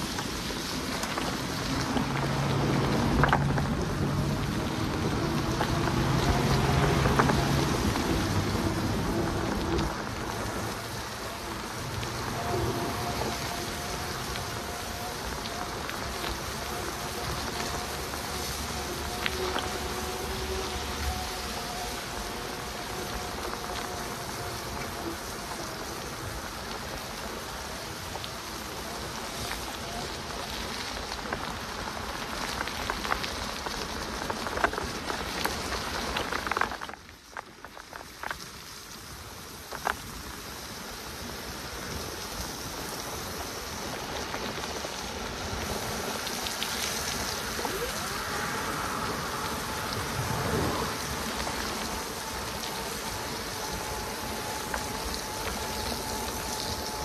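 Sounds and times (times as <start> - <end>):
bike tyres hissing on wet tarmac: 0.0 - 57.0
steady rain: 0.0 - 57.0
electric motor whir: 2.4 - 27.4.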